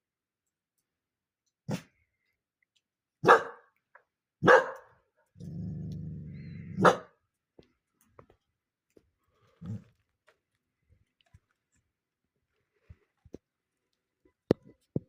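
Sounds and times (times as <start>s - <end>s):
dog barking: 3.2s - 3.7s, 4.4s - 5.0s, 6.7s - 7.2s
dog growling: 5.4s - 6.9s, 9.6s - 10.0s.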